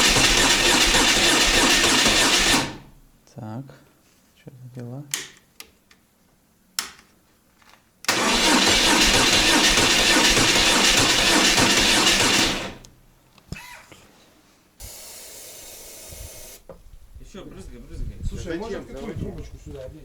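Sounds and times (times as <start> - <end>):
electric starter cranking engine: 0.0 - 3.0, 8.1 - 12.9
aerosol spray hissing: 14.8 - 16.6.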